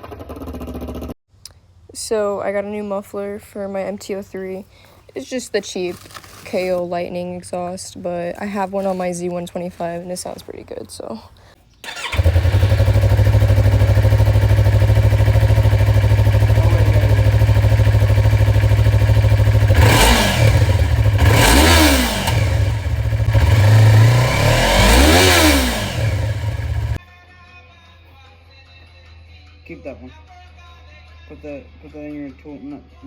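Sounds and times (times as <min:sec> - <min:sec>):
motorcycle engine idling and revving: 0:00.0 - 0:01.2, 0:11.8 - 0:27.0.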